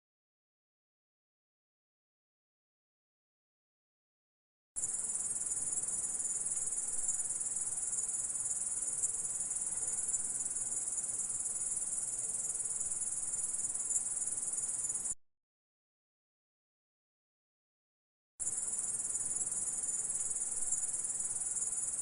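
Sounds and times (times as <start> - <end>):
grasshopper stridulating: 4.8 - 15.2, 18.4 - 22.0.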